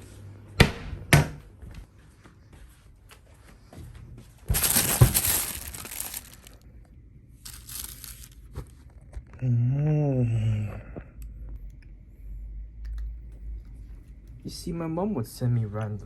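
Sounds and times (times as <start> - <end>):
packaging crinkling and rustling: 4.4 - 6.6, 7.4 - 8.9.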